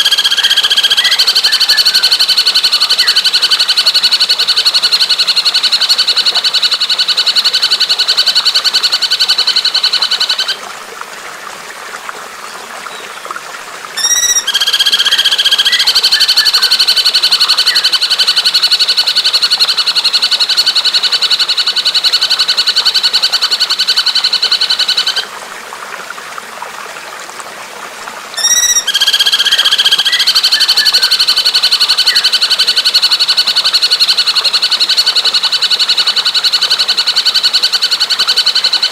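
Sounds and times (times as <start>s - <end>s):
bird rattling call: 28.4s - 30.3s.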